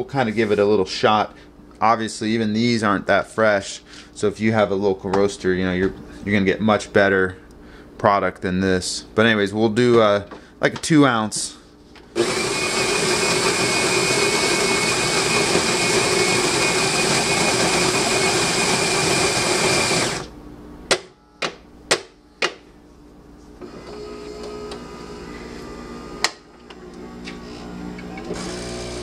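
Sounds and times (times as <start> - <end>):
coffee grinder grinding beans: 12.2 - 20.3, 23.8 - 29.0
espresso machine humming: 12.2 - 20.3, 23.6 - 29.0.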